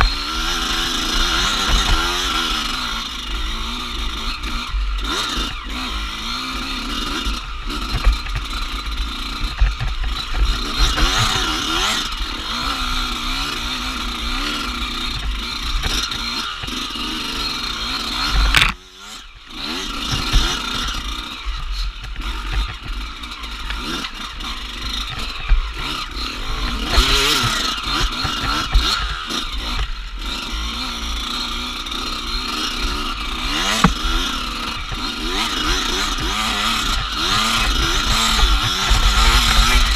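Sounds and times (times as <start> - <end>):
dirt bike engine revving: 0.0 - 39.9
knocks and clatter: 7.8 - 11.4, 22.0 - 23.0.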